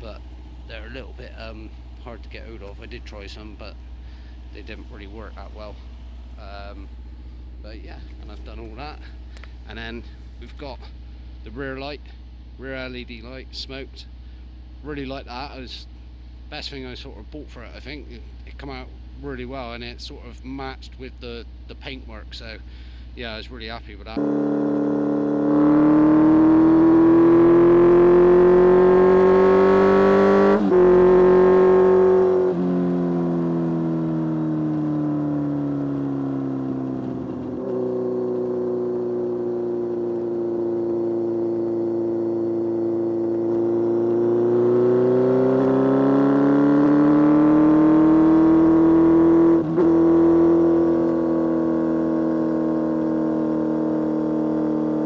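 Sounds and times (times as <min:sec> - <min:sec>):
motorcycle engine accelerating: 0:24.2 - 0:55.0.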